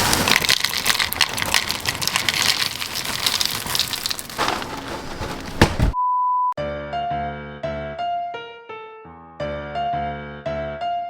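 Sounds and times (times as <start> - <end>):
dry cereal poured into a bowl: 0.0 - 5.5.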